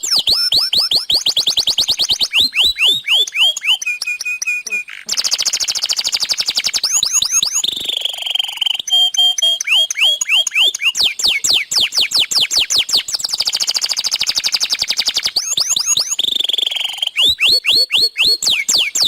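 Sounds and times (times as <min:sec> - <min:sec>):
canary singing: 0:00.0 - 0:19.0.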